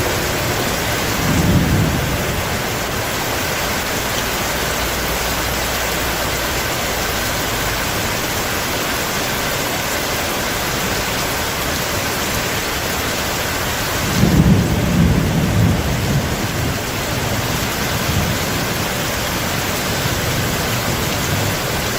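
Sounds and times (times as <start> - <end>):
thunder rumbling: 0.0 - 5.3, 13.8 - 21.9
heavy rain: 0.0 - 21.9.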